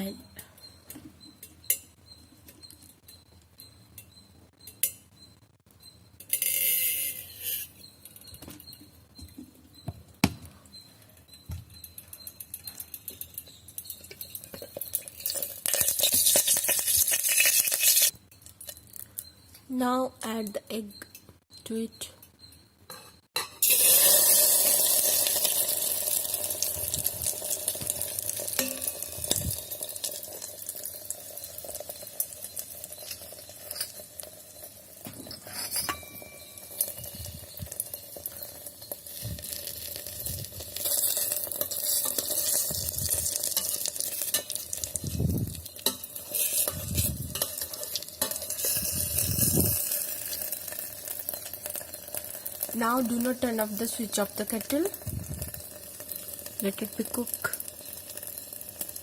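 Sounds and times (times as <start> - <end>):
egg sizzling in hot oil: 12.3 - 19.3, 23.6 - 35.1, 36.2 - 59.0
utensil knocking and scraping pot: 13.2 - 18.1, 45.6 - 52.7.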